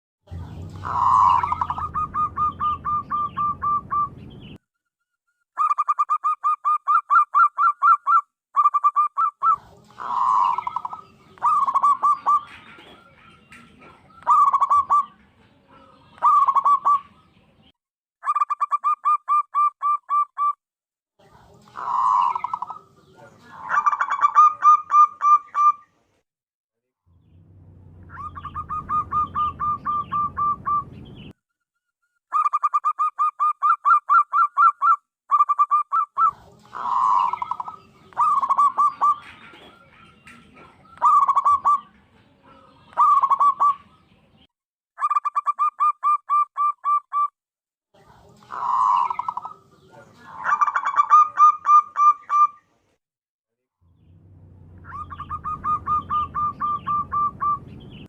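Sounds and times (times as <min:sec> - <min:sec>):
dove cooing: 0:00.8 - 0:04.2, 0:05.6 - 0:17.2, 0:21.6 - 0:25.8, 0:28.1 - 0:30.9, 0:35.4 - 0:44.0, 0:48.4 - 0:52.6, 0:54.8 - 0:57.7.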